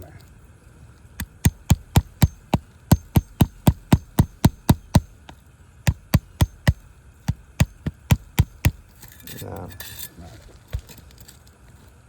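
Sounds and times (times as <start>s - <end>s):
hammer tapping on tool: 1.2s - 8.8s.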